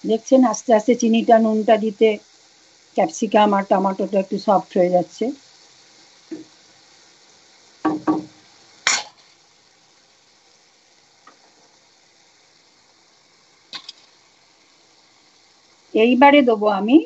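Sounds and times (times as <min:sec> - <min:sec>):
vegetables sizzling in a pan: 0:00.0 - 0:17.0
small clicks: 0:13.7 - 0:14.2.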